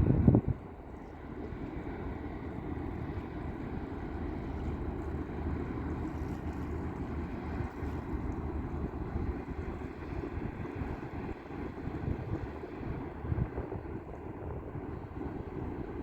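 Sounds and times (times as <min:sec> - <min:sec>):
wind on microphone: 0:00.0 - 0:01.2, 0:06.1 - 0:16.0
ship engines droning: 0:00.0 - 0:16.0.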